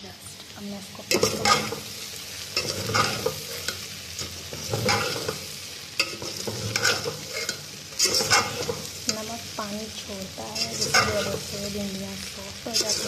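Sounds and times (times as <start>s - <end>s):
okra sizzling in oil: 0.0s - 13.0s
metal spoon scraping a pot: 2.6s - 3.8s, 4.6s - 5.4s, 6.0s - 8.9s, 10.6s - 11.5s.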